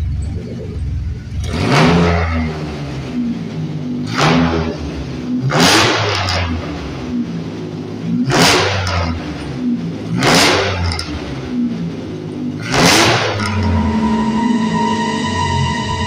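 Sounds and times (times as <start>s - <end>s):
van engine revving and idling: 0.0s - 16.0s
steady tones: 12.6s - 16.0s.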